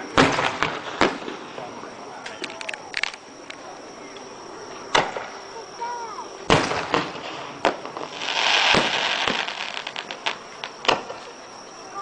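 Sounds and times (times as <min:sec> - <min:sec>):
fireworks booming: 0:00.0 - 0:02.2, 0:04.8 - 0:05.4, 0:06.2 - 0:11.4
fireworks crackling: 0:00.0 - 0:03.7, 0:04.8 - 0:12.0.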